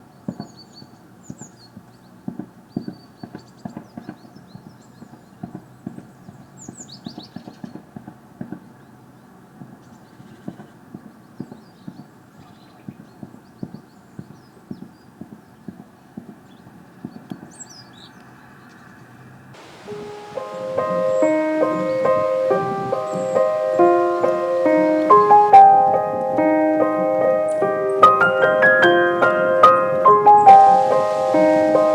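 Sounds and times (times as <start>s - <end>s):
small birds chirping: 19.6s - 31.9s.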